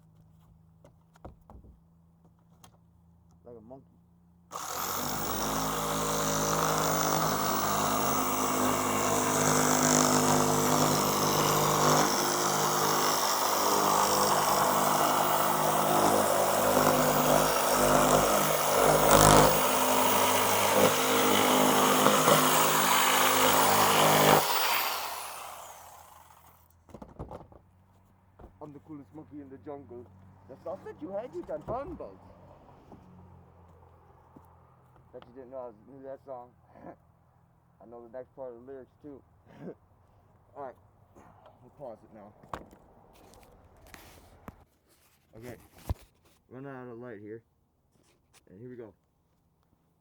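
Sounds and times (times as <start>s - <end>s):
electric power tool running: 4.5s - 26.6s.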